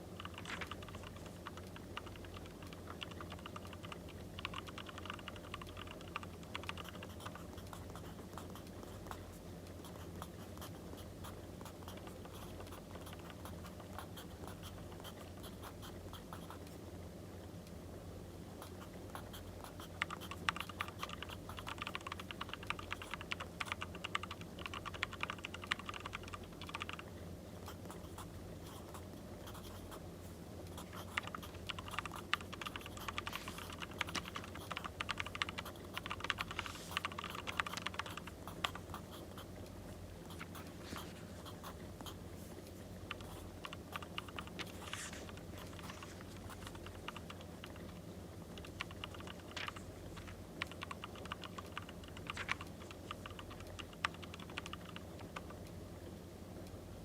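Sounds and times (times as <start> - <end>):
light pen ticks: 0.2 - 9.2, 18.6 - 27.1, 30.7 - 55.8
pen scratching on paper: 30.8 - 39.5, 43.1 - 47.1.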